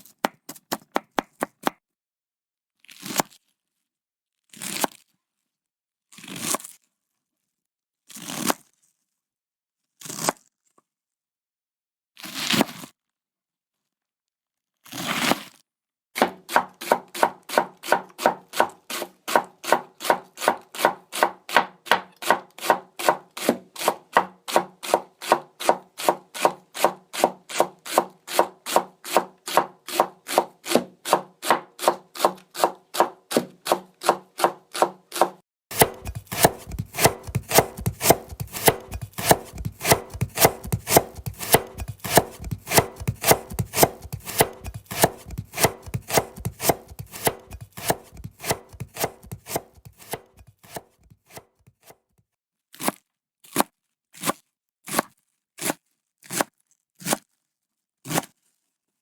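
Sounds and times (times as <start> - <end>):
knife chopping on cutting board: 0.0 - 1.7, 16.2 - 51.8.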